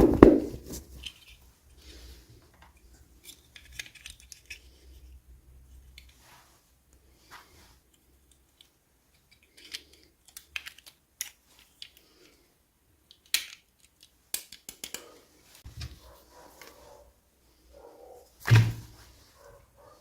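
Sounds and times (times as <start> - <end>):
toy pieces clicking and tapping: 9.3 - 12.0, 13.0 - 15.1.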